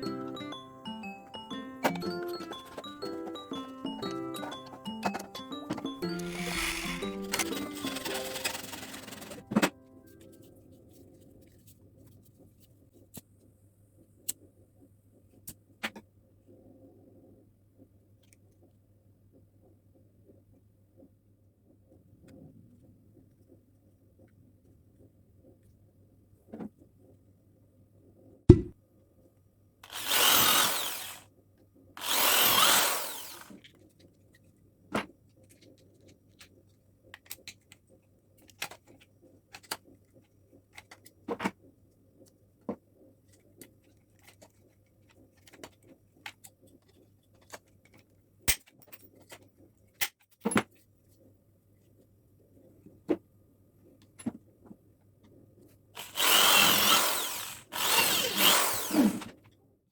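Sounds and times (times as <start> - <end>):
electric drill running: 0.3 - 9.5, 29.8 - 31.2, 32.0 - 33.6, 56.0 - 59.3.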